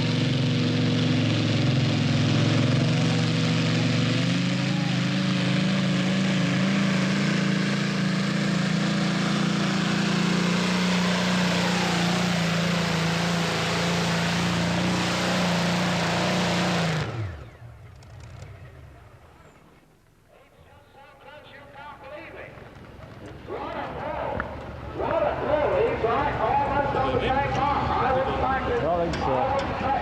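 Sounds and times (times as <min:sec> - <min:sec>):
tractor engine at high revs: 0:00.0 - 0:19.3.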